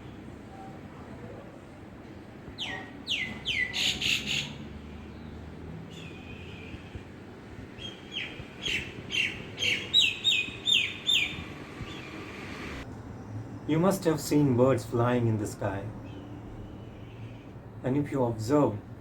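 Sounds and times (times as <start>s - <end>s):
bird calling with descending notes: 7.8s - 12.8s.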